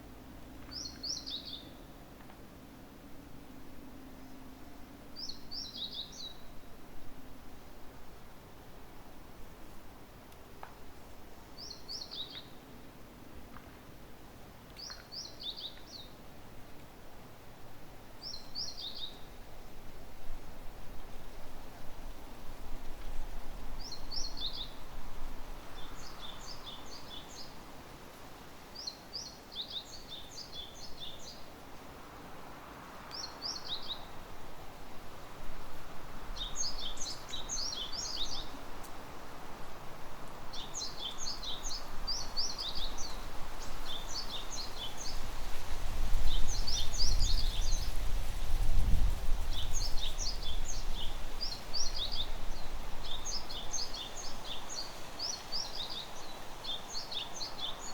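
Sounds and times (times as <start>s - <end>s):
background hiss: 0.0s - 57.9s
songbirds twittering: 0.6s - 2.0s, 5.2s - 6.8s, 11.5s - 12.6s, 14.7s - 16.2s, 18.2s - 19.4s, 23.8s - 24.8s, 25.6s - 27.7s, 28.8s - 31.5s, 33.1s - 34.2s, 36.2s - 39.1s, 40.2s - 57.9s.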